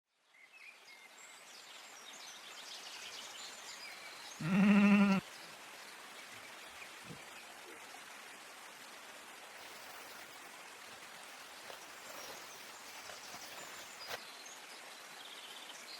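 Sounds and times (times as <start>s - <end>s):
steady hiss: 1.2s - 15.9s
animal wavering call: 4.4s - 5.2s.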